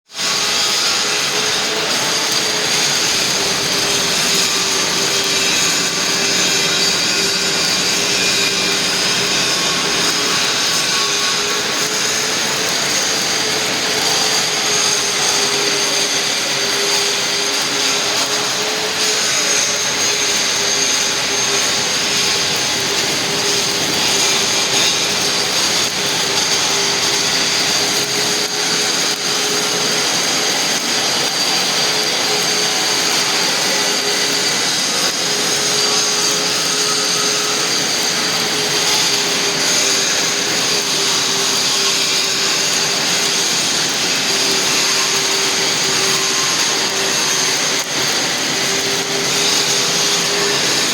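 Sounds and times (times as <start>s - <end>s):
arc welding hiss: 0.2s - 50.9s.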